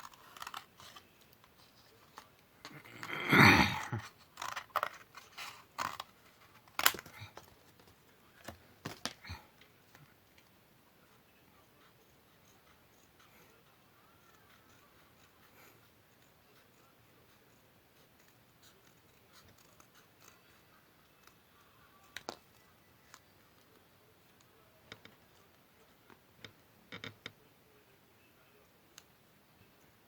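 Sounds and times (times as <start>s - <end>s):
scissors cutting paper: 0.0s - 3.2s, 3.8s - 9.4s, 11.8s - 23.7s.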